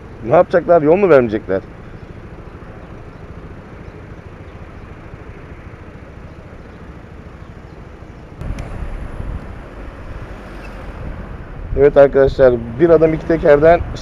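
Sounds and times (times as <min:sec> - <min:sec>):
motorcycle road noise: 0:00.0 - 0:14.0
wind rumble on microphone: 0:08.4 - 0:14.0.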